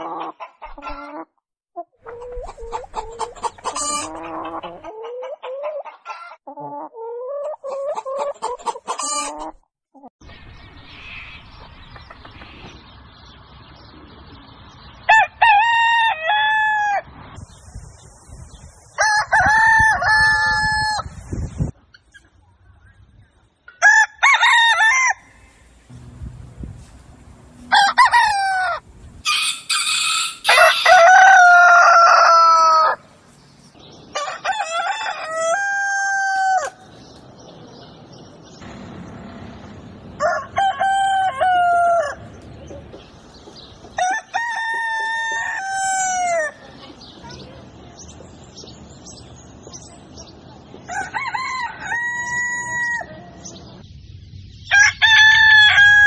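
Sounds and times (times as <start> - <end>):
roosters crowing: 2.2 - 4.9, 15.1 - 17.1, 19.0 - 21.2, 23.8 - 33.2, 33.8 - 47.1, 50.8 - 53.7, 54.6 - 56.0.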